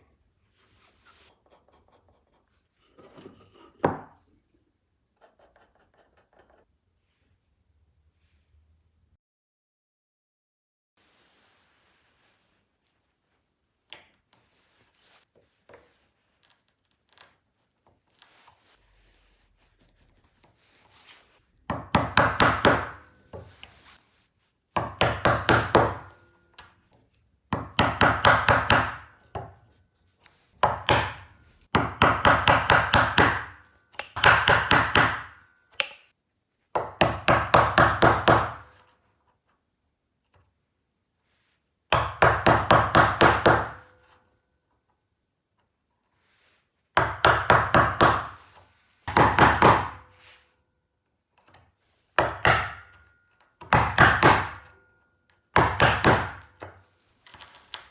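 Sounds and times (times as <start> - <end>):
wood and tools tapping: 30.6 - 36.1.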